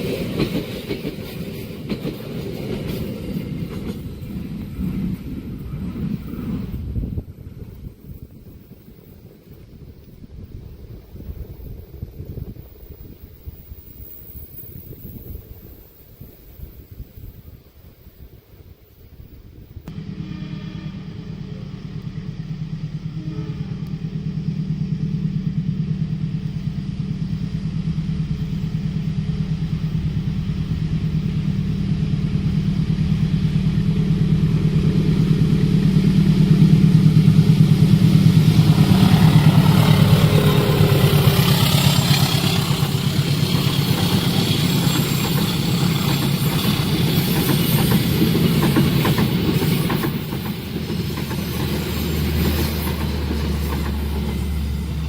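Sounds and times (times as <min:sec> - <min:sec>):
train wheels clattering on rails: 0:00.0 - 0:06.8, 0:23.8 - 0:55.0
diesel locomotive engine: 0:00.0 - 0:55.0.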